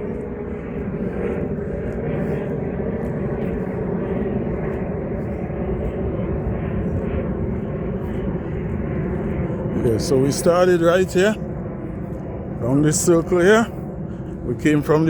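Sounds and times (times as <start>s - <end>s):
low mechanical drone: 0.0s - 15.0s
soft footsteps: 0.0s - 15.0s.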